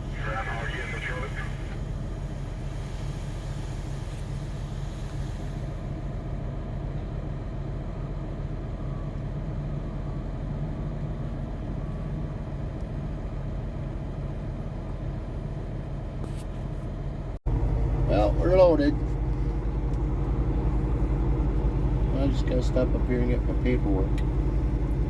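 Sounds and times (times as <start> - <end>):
diesel engine low hum: 0.0 - 25.0.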